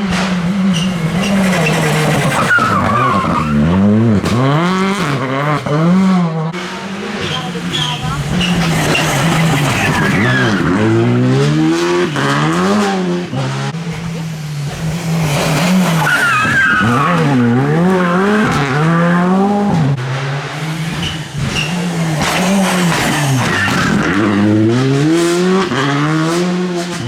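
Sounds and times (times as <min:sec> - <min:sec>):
rally car engine revving: 0:00.0 - 0:27.0
tyres squealing: 0:00.6 - 0:03.7, 0:06.7 - 0:12.7, 0:15.1 - 0:19.8, 0:20.5 - 0:24.4.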